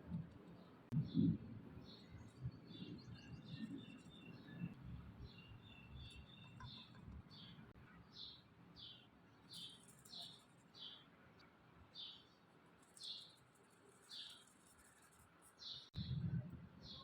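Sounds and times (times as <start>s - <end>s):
faint bird chirping: 0.5s - 17.0s.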